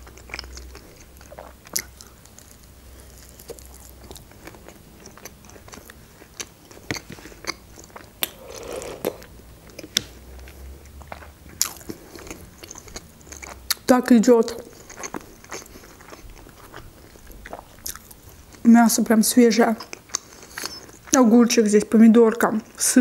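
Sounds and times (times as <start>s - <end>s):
chewing a wrap: 0.0s - 13.9s, 14.5s - 18.7s, 19.7s - 21.2s
wet mouth clicks: 7.5s - 10.1s.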